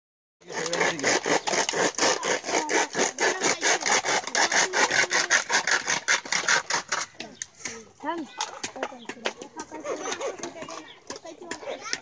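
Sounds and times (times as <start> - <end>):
hand saw strokes: 0.4 - 12.0.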